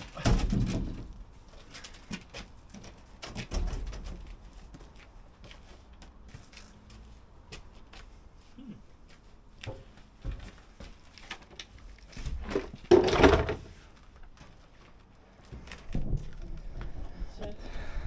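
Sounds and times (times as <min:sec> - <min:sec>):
knocks and clunks: 0:00.1 - 0:01.2, 0:12.3 - 0:13.7.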